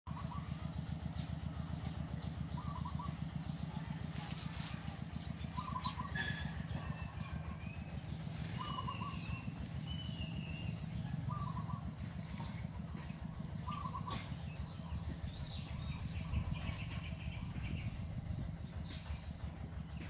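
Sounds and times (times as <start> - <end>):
steady low rumble: 0.1 - 20.0
bird trilled call: 2.3 - 18.0
thin whistled bird notes: 4.5 - 12.6.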